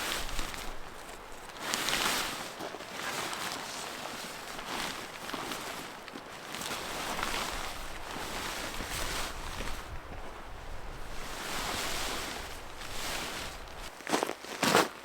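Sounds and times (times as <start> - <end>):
strong wind blowing in gusts: 6.8 - 13.9.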